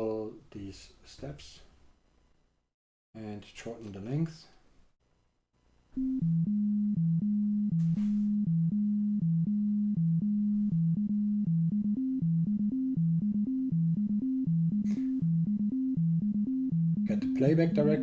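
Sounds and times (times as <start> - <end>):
synthesizer sequenced loop: 6.0 - 18.0.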